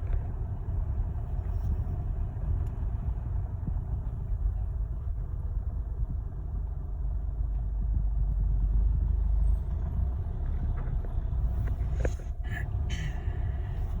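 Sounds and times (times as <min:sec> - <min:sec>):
car engine rumble: 0:00.0 - 0:14.0.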